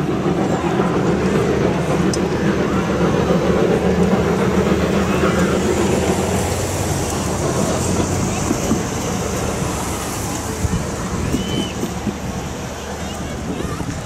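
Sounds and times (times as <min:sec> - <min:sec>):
steam train rumbling past: 0:00.0 - 0:14.0
car passing: 0:03.8 - 0:13.5.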